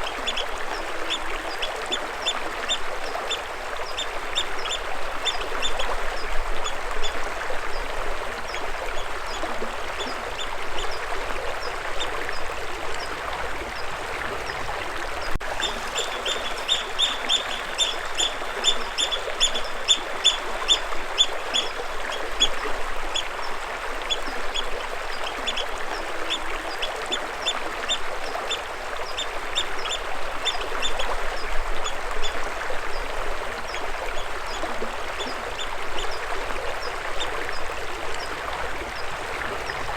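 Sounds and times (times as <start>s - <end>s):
water flowing: 0.0s - 39.9s
bird chirping: 15.6s - 21.8s.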